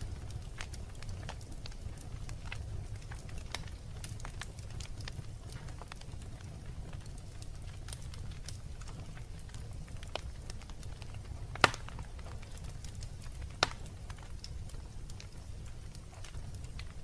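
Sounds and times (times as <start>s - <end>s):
small fire crackles: 0.0s - 17.0s
wood fire rumbling: 0.0s - 17.0s
loud sharp pops: 11.6s - 12.0s.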